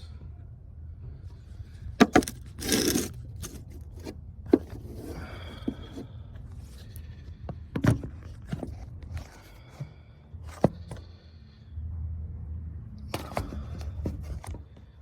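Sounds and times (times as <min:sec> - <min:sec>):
short scrape: 0:02.2 - 0:04.1.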